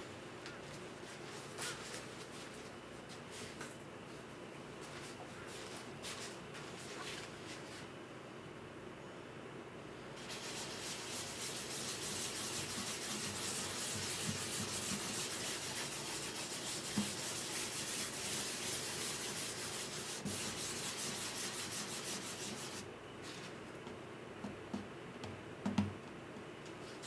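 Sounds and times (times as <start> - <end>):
sandpaper rubbing on wood: 10.2 - 22.8.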